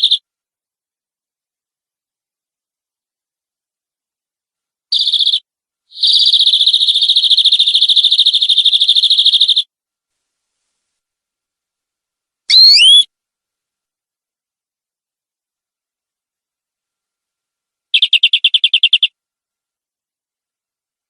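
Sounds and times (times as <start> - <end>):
canary singing trills: 0.0 - 0.2, 4.9 - 9.7, 12.5 - 13.1, 17.9 - 19.2.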